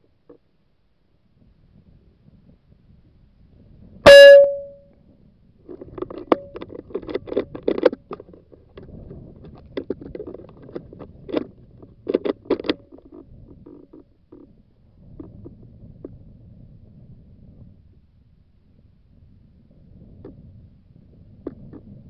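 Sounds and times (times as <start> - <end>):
brief ringing tone: 4.1 - 4.9.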